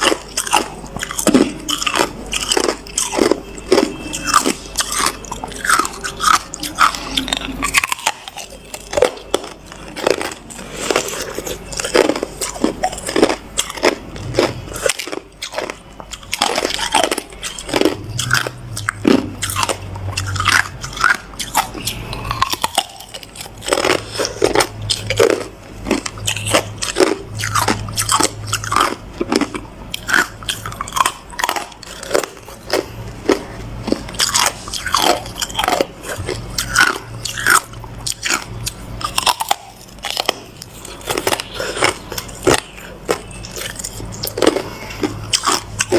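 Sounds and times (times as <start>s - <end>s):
ice being chewed: 0.0s - 45.9s.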